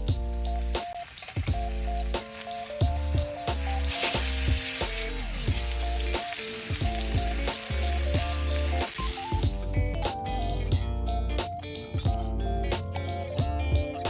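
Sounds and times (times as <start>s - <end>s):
food sizzling in a pan: 0.0s - 9.6s
background music: 0.0s - 14.0s.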